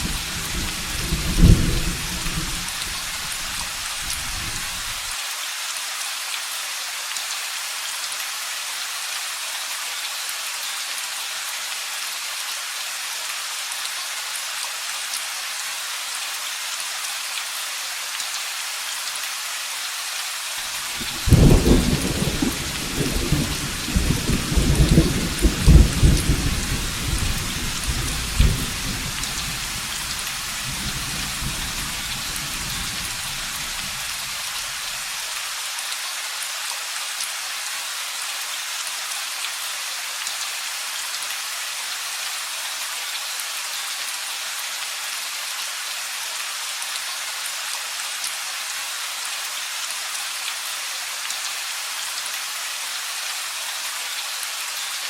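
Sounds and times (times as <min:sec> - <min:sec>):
thunder: 0:00.0 - 0:05.0, 0:21.0 - 0:29.6
steady rain: 0:00.0 - 0:55.0.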